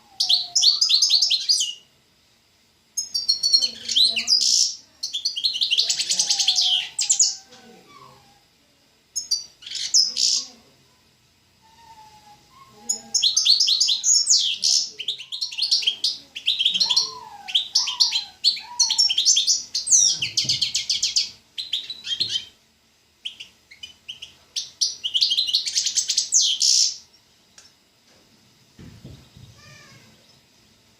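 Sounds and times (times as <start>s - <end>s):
songbird singing trills: 0.1s - 1.9s, 3.0s - 8.3s, 9.2s - 10.6s, 11.6s - 22.6s, 23.2s - 27.3s.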